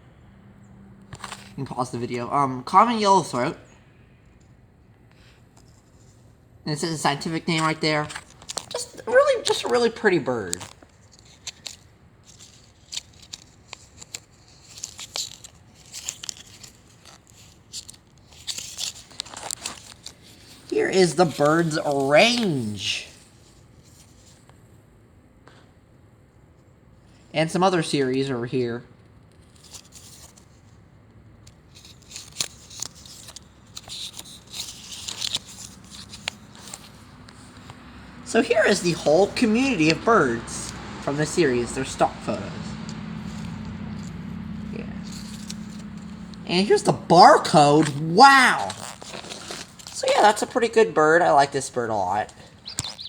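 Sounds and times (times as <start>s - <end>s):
cardboard tag clicks and rustles: 7.2s - 22.7s, 31.5s - 38.0s, 45.0s - 50.6s.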